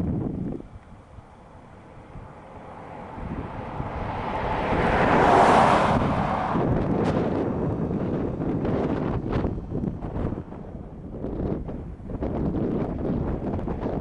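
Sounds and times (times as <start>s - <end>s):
vehicle tyre and road noise: 0.0s - 14.0s
wind rumble on microphone: 0.0s - 14.0s.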